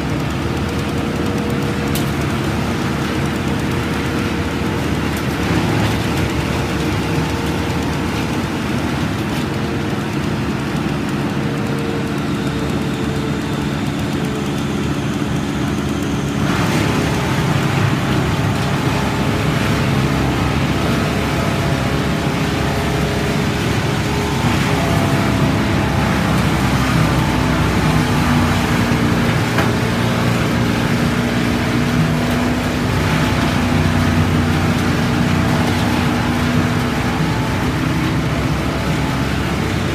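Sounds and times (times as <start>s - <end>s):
large engine running: 0.0s - 39.9s.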